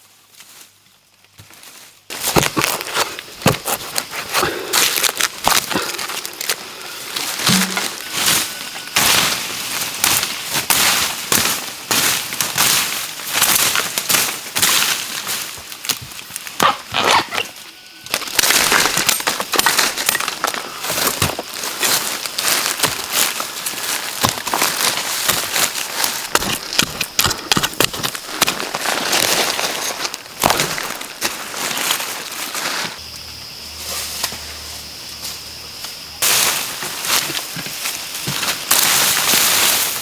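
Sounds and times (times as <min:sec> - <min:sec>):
dry plants crackling and rustling: 0:00.0 - 0:40.0
dog-like yelps: 0:16.6 - 0:17.6.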